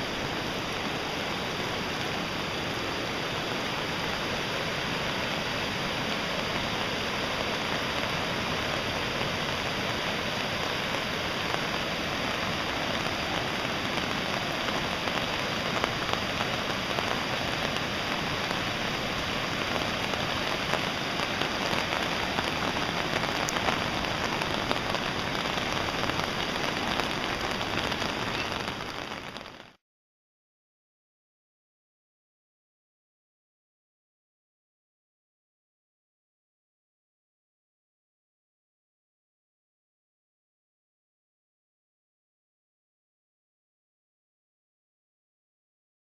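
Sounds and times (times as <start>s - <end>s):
water rushing: 0.0s - 29.8s.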